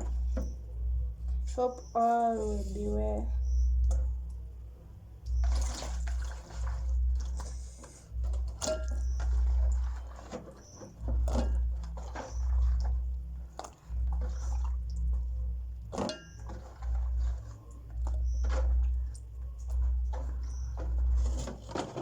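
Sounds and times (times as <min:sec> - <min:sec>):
low rumble: 0:00.0 - 0:10.3
bowl knocking: 0:08.5 - 0:12.9.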